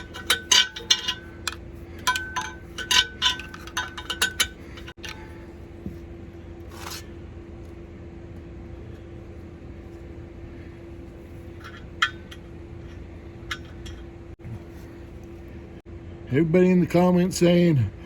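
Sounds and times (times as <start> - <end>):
metal tools clinking: 0.0 - 5.6, 11.3 - 14.8
steady hum: 0.0 - 18.0.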